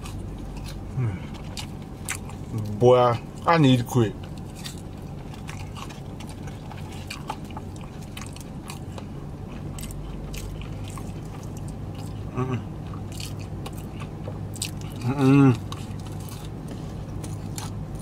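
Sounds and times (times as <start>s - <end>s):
chewing crunches: 0.0s - 18.0s
low steady hum: 0.0s - 18.0s
person humming mm: 0.9s - 1.3s, 12.3s - 12.7s, 15.0s - 15.6s.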